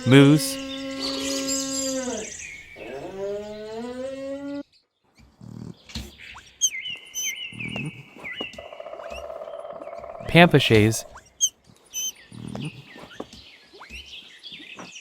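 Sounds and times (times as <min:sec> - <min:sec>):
moose calling: 0:00.2 - 0:04.2
bird chirps: 0:00.5 - 0:02.9, 0:05.8 - 0:15.0.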